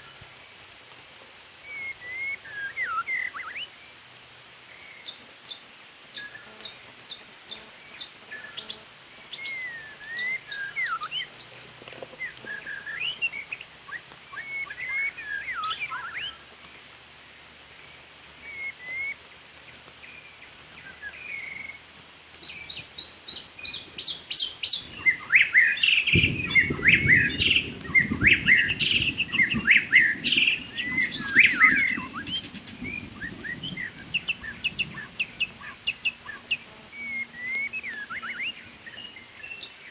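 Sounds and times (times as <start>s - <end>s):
bird singing whistled phrases: 1.7s - 3.8s, 9.3s - 11.7s, 12.5s - 16.4s, 18.4s - 19.2s, 22.4s - 39.9s
faint high whine: 35.0s - 39.9s.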